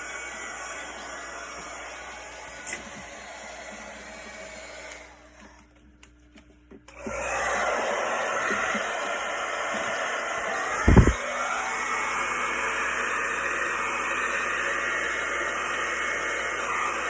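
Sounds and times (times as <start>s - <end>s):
heat gun blowing: 7.0s - 17.0s
low thump: 10.8s - 11.2s.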